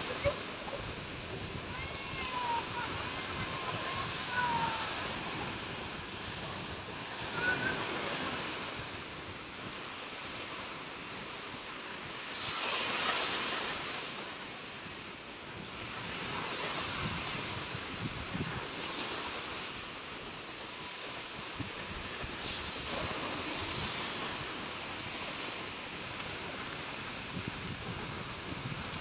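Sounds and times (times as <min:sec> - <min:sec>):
wind buffeting microphone: 0:00.0 - 0:11.3, 0:15.5 - 0:20.4, 0:21.2 - 0:29.0
sea waves washing onto beach: 0:00.0 - 0:29.0.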